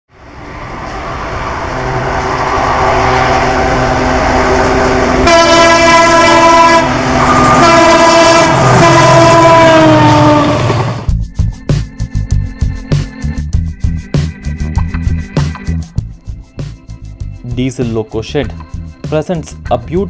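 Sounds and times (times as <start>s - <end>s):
train running noise: 0.1s - 11.2s
locomotive horn blasting: 2.0s - 11.0s.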